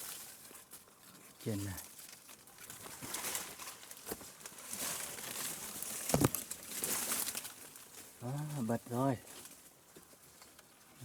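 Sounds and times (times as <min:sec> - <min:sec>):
rustling: 0:00.0 - 0:08.1.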